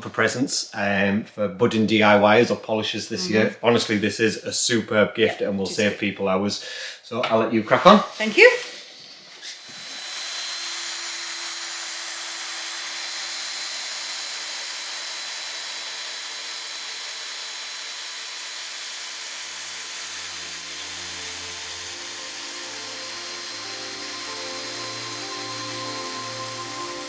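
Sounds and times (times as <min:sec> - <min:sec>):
power tool whirring with high whine: 0:07.8 - 0:27.0
music: 0:20.3 - 0:27.0.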